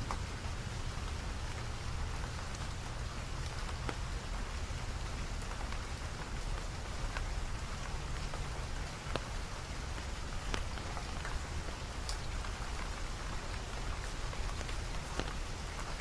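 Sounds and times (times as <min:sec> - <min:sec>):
raindrops tapping: 0:00.0 - 0:16.0
steady rain falling: 0:00.0 - 0:16.0.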